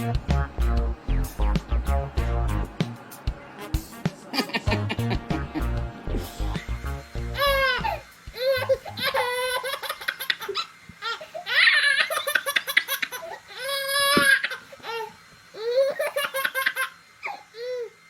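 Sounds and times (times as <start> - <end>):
young child giggling: 4.3 - 5.7, 7.4 - 14.6, 15.6 - 17.9.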